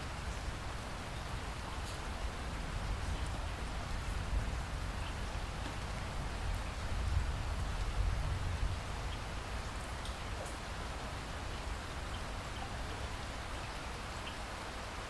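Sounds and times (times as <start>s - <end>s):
steady rain: 0.0s - 15.0s
raindrop ticks: 9.1s - 10.6s.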